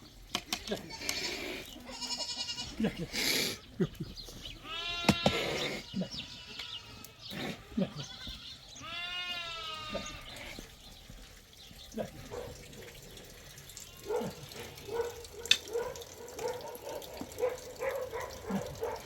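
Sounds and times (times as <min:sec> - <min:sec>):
goat bleating: 0:00.5 - 0:03.2, 0:03.9 - 0:10.6, 0:13.8 - 0:14.4.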